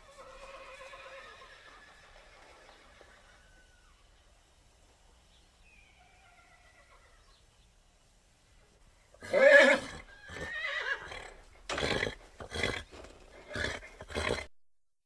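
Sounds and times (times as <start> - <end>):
horse whinnying: 9.2 - 14.5.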